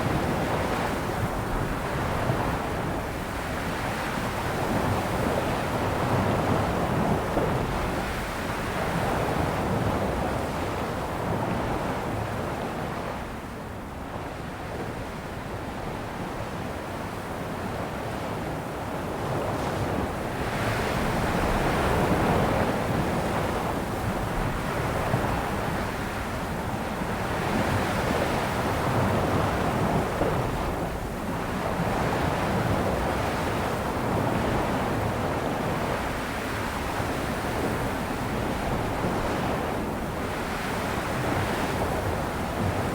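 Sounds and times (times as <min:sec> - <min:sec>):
sea waves breaking on shore: 0:18.1 - 0:42.9.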